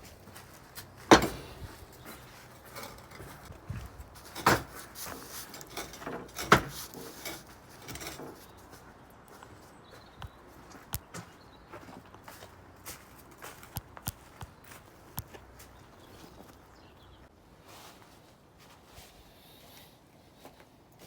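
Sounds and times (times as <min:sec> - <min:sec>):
loud knocks of metal parts: 0:01.1 - 0:01.9, 0:04.2 - 0:08.4.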